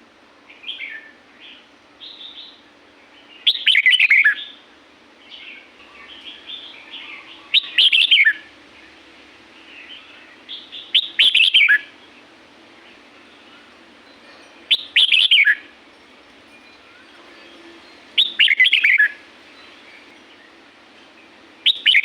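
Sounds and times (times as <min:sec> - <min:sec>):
bulbul singing warbled phrases: 0:03.2 - 0:04.6, 0:05.3 - 0:09.0, 0:09.6 - 0:13.8, 0:14.7 - 0:15.7, 0:18.2 - 0:19.3, 0:21.6 - 0:22.0.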